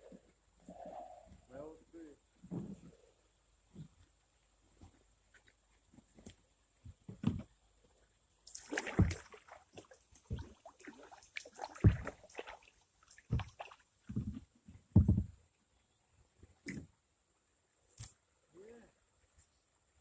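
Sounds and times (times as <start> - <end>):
paddle splashing in water: 8.5 - 14.4
knocks against kayak hull: 14.1 - 15.4.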